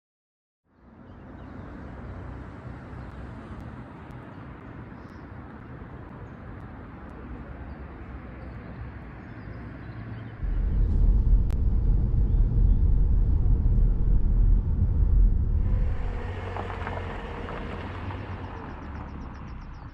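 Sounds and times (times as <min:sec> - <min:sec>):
low outdoor rumble: 0:10.4 - 0:19.9.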